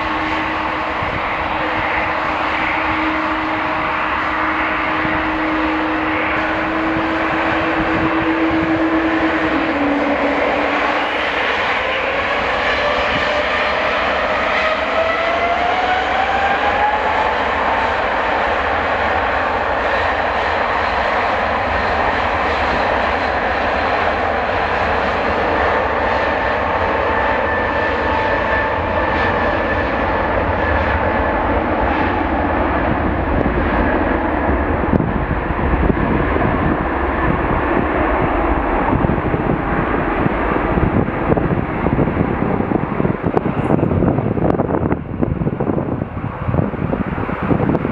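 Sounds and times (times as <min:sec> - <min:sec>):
airliner engines running: 0:00.0 - 0:47.9.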